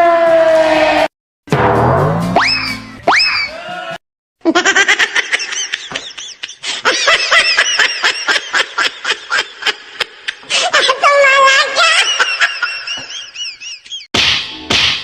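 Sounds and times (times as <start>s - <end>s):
high-pitched laughter: 4.4s - 14.1s.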